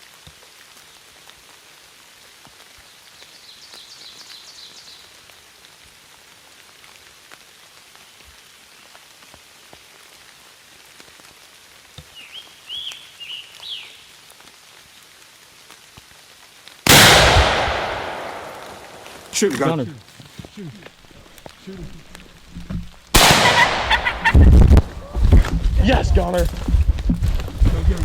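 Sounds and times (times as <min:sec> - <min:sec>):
rain pattering: 0:00.0 - 0:28.0
shotgun blast: 0:16.9 - 0:19.3, 0:23.2 - 0:24.7.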